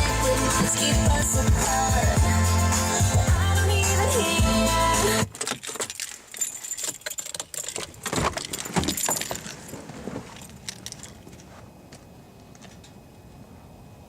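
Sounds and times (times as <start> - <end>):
music with a steady beat: 0.0 - 5.3
small clicks and jangling rattles: 5.3 - 11.5.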